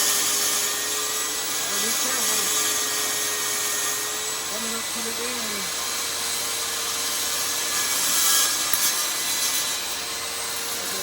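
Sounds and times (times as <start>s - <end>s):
power saw cutting antler: 0.0s - 11.0s.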